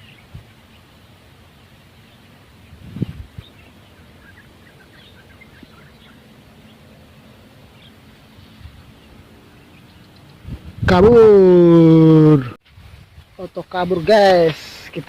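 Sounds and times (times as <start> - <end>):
small birds chirping: 0.0 - 10.8
quiet outdoor background noise: 0.0 - 15.0.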